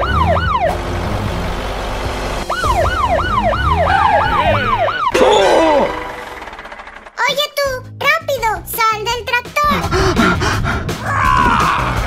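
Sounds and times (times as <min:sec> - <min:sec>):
police siren yelping: 0:00.0 - 0:00.8, 0:02.5 - 0:06.6.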